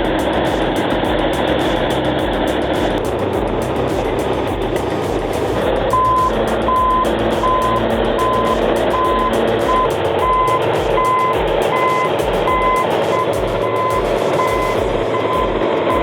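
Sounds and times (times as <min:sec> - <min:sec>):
diesel engine running: 0:00.0 - 0:16.0
reversing alarm beeping: 0:05.9 - 0:16.0.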